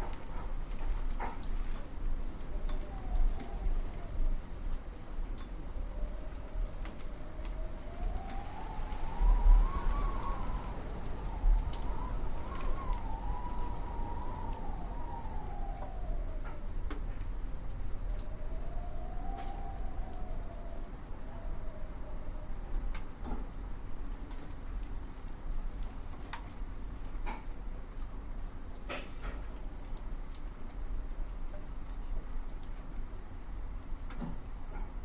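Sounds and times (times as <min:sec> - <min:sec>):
wind howling: 0:00.0 - 0:23.0.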